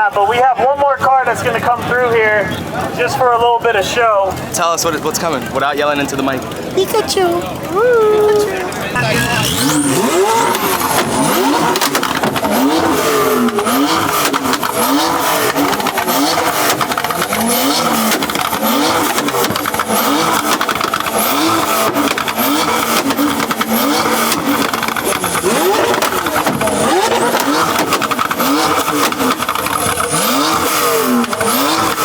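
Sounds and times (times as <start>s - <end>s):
car engine revving: 0.2s - 32.0s
exhaust pops and bangs: 8.9s - 32.0s.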